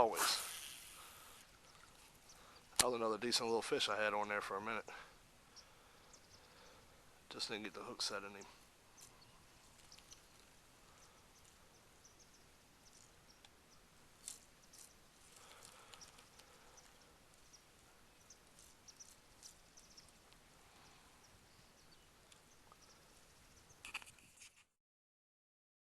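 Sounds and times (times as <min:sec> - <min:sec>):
outdoor background hiss: 0:00.0 - 0:24.2
high chirps and ticks: 0:08.2 - 0:20.4.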